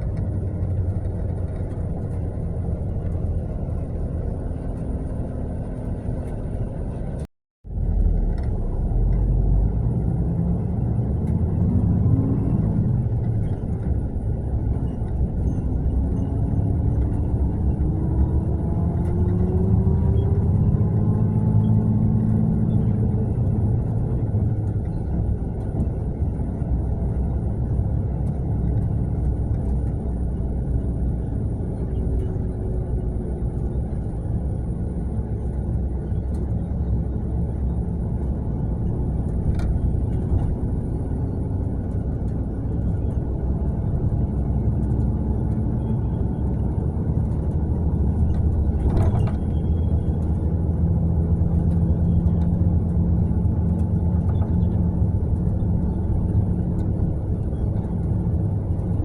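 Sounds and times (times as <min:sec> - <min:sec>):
coach diesel engine rumbling: 0:00.0 - 0:59.0
road noise: 0:00.0 - 0:59.0.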